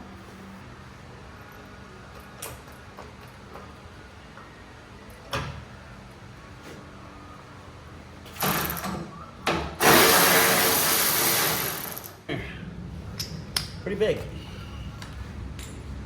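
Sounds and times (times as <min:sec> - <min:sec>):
impact wrench bursts: 0:09.8 - 0:12.2.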